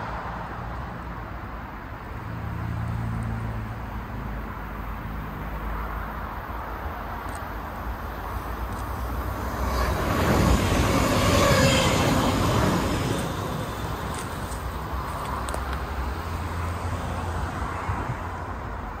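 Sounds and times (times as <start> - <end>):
train passing: 4.4 - 19.0.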